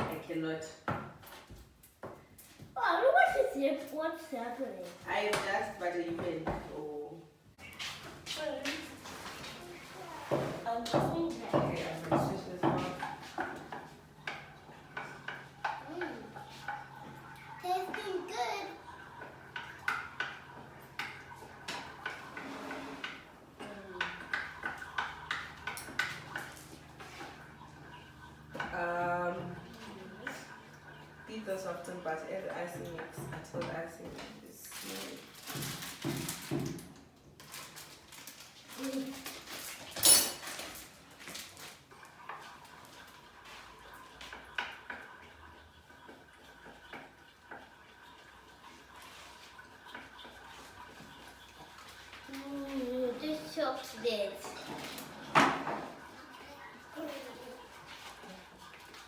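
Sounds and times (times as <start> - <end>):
utensils clinking on a bowl: 37.4 - 47.6, 53.4 - 59.0
utensil clinking against bowl: 40.0 - 40.7.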